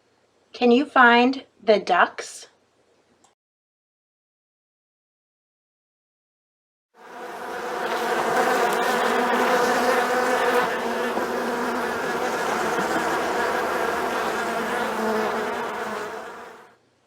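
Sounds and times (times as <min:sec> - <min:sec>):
bees buzzing: 0:07.0 - 0:16.7.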